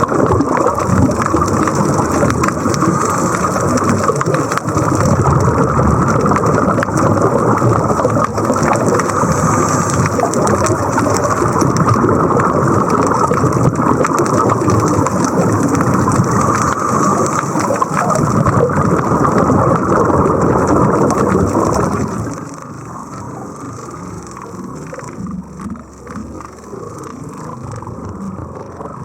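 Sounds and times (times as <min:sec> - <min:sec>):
underwater air bubbles rushing: 0:00.0 - 0:29.0.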